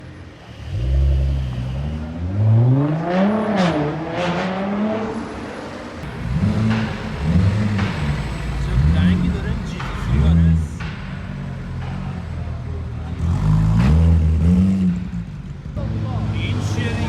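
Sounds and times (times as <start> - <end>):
sports car engine revving: 0.5 - 17.0.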